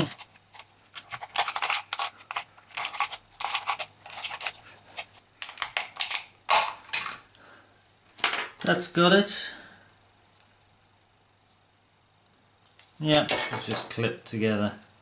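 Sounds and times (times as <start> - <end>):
screwdriver scraping plastic: 0.0 - 6.1.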